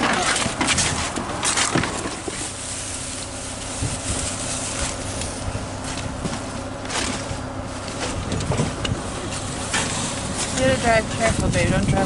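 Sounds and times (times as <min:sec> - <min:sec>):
plastic bags rustling: 0:00.0 - 0:12.0
steady low hum: 0:00.0 - 0:12.0.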